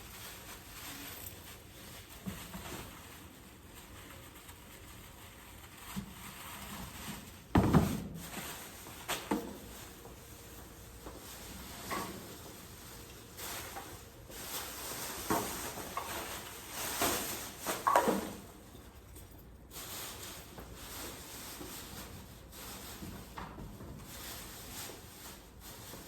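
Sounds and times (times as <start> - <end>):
rustling and scraping of objects: 0.0 - 26.0.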